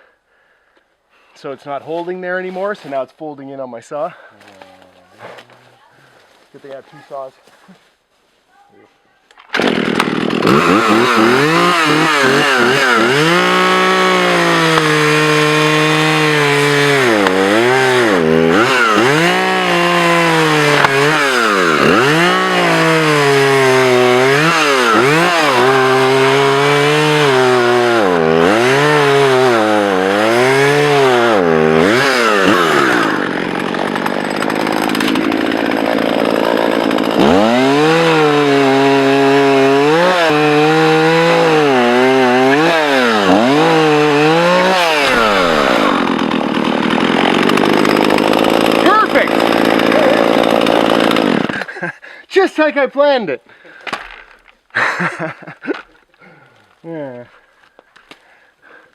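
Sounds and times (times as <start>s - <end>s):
chainsaw cutting wood: 9.4s - 51.9s.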